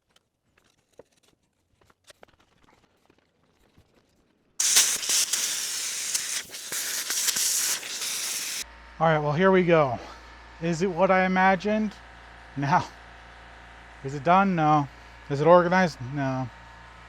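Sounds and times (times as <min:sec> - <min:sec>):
pressurized air hissing: 0:04.6 - 0:08.6.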